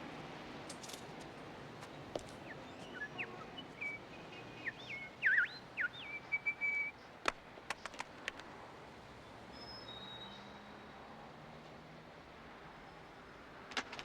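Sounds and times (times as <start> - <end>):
bird singing whistled notes: 2.4 - 7.0.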